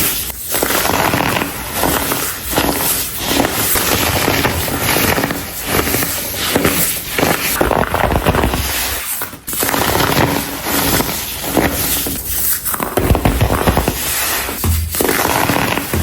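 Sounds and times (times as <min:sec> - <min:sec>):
baking soda chunks crunching: 0:00.6 - 0:16.0.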